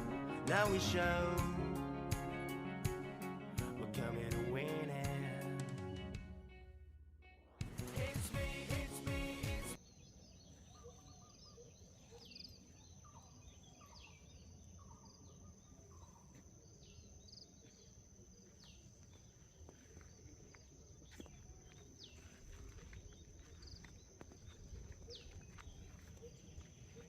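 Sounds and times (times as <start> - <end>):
small birds chirping: 9.8 - 27.0.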